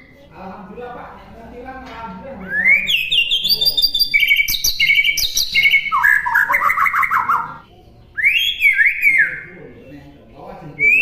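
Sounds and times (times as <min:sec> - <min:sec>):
bird singing whistled notes: 0:02.5 - 0:07.6, 0:08.2 - 0:09.6, 0:10.8 - 0:11.0.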